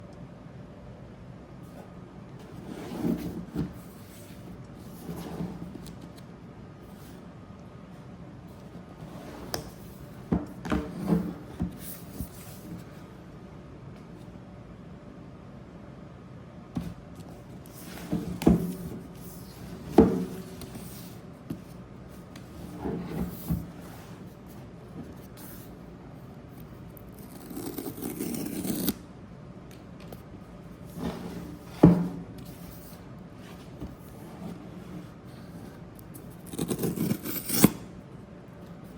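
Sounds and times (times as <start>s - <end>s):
cardboard rubbing and scraping: 2.4s - 5.8s.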